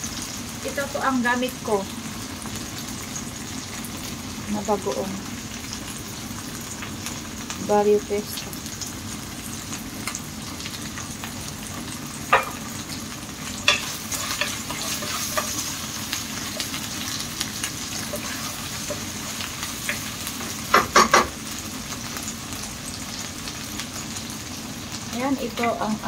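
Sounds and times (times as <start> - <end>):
food sizzling in an oiled pan: 0.0 - 26.0
utensil clacking on pan: 12.3 - 12.6, 13.6 - 15.8, 19.8 - 21.4.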